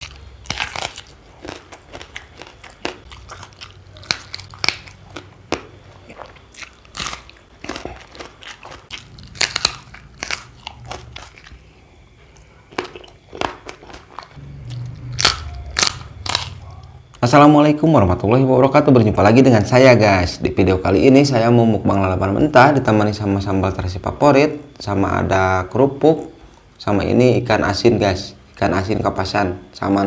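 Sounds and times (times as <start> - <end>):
person chewing crunchy food: 0.0 - 17.2.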